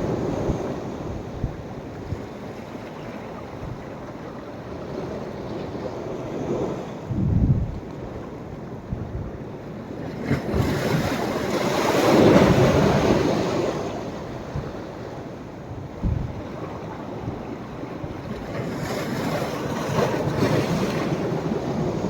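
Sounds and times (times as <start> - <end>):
wind thumps on microphone: 7.1 - 7.9, 15.9 - 16.5
sea waves breaking on beach: 9.8 - 22.0.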